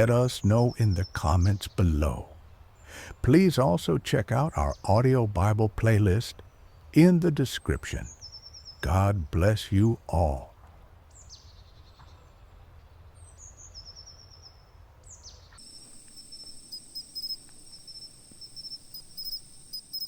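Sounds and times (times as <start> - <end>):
insect chirps: 15.6 - 20.0
insects trilling: 15.6 - 20.0.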